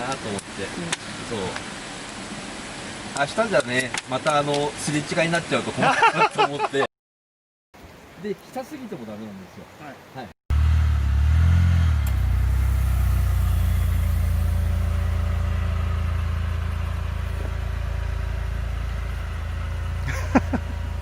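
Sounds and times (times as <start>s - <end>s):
car engine idling: 10.5s - 21.0s.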